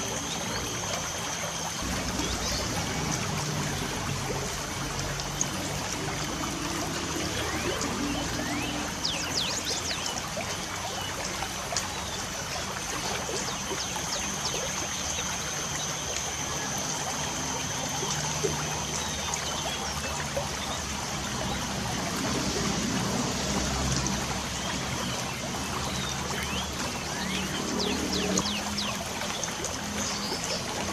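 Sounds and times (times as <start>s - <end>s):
light rain falling: 0.0s - 14.9s.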